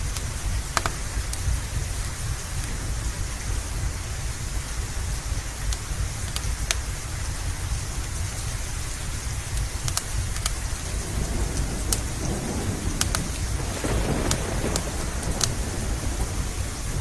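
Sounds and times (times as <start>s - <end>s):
steady rain hiss: 0.0s - 17.0s
wood fire crackling: 9.3s - 17.0s
thunder rumble: 10.0s - 17.0s.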